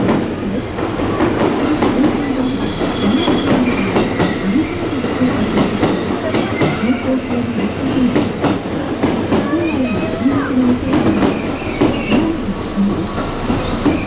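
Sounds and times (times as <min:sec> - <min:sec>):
train wheels clacking: 0:00.0 - 0:14.0
train whine: 0:00.0 - 0:14.0
faint wheel squeal: 0:01.3 - 0:06.8, 0:11.0 - 0:14.0.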